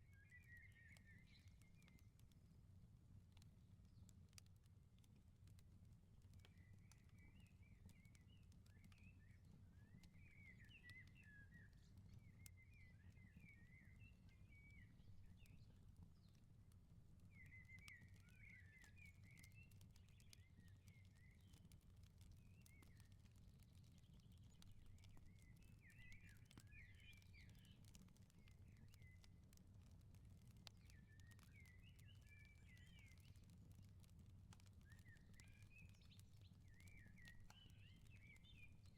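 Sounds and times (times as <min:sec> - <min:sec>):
wood fire crackling: 0:00.3 - 0:38.9
small birds twittering: 0:17.3 - 0:29.2, 0:30.6 - 0:33.5, 0:34.7 - 0:38.9.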